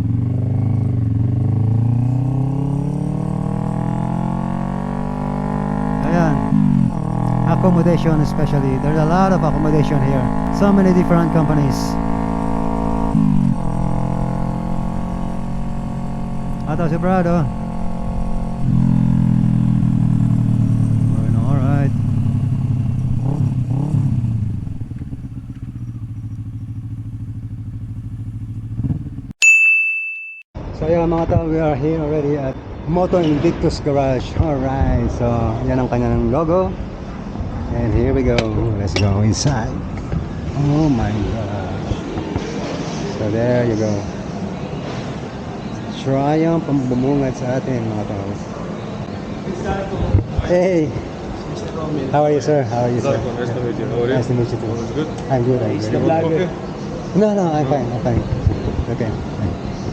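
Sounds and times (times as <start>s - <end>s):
motorcycle engine accelerating: 0.0s - 29.4s.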